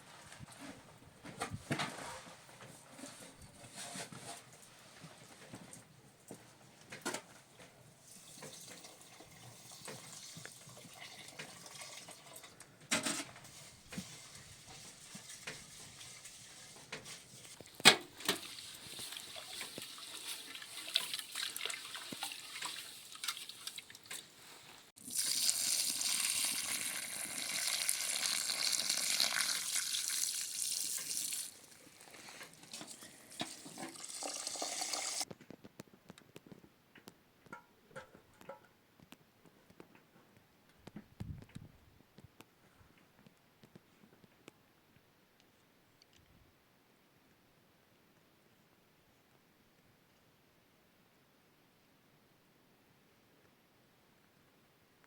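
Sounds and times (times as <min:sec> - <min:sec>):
water running and splashing: 0:18.2 - 0:24.2, 0:25.0 - 0:35.2.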